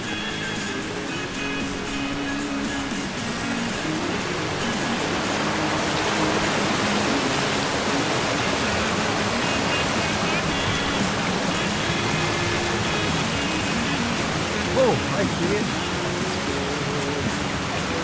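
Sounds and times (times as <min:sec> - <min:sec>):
creek water rushing: 0:00.0 - 0:18.0
faint background music: 0:00.0 - 0:18.0.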